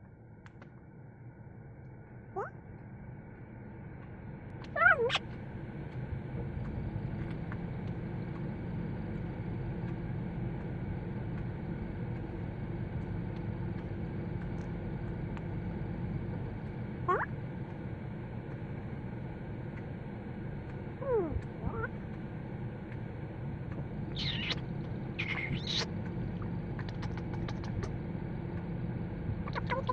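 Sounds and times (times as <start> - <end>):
steady low hum: 0.0 - 29.9
parrot whistle-like call: 24.1 - 24.6, 25.2 - 25.9.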